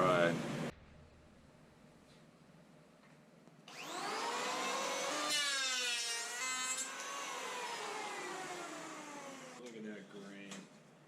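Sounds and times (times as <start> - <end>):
power tool motor cutting wood: 3.7 - 9.6.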